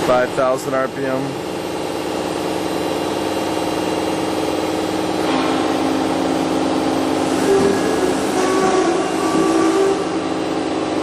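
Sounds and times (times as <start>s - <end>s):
machine spindle whine: 0.9s - 11.0s
higher wavering tone: 5.2s - 10.6s.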